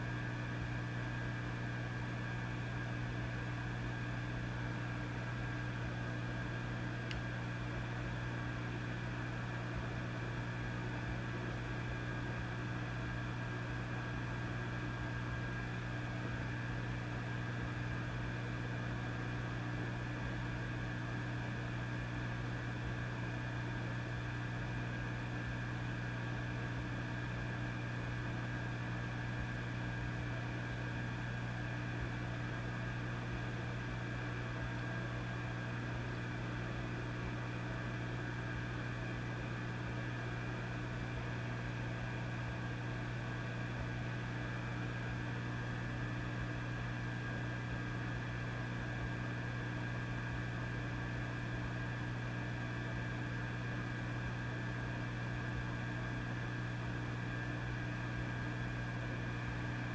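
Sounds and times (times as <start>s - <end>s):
tube amplifier hum: 0.0s - 59.9s.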